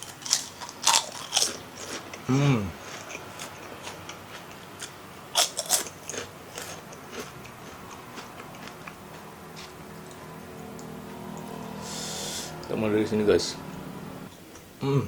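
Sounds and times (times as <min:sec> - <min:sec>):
crunching crisp crackers: 0:00.0 - 0:10.3.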